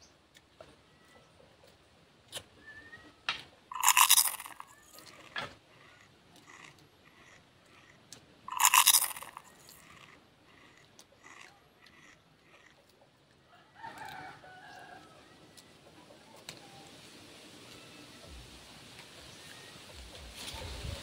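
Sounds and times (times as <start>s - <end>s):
person chewing crunchy leaves: 3.7s - 12.8s.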